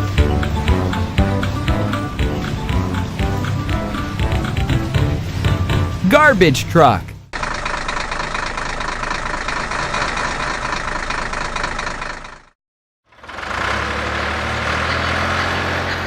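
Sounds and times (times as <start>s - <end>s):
deep engine hum: 0.0s - 12.2s
truck engine running: 0.0s - 12.5s, 13.1s - 16.0s.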